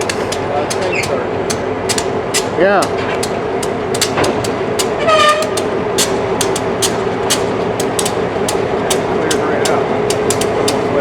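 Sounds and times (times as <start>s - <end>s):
steady hum: 0.0s - 11.0s
train wheels clicking over rail joints: 0.0s - 11.0s.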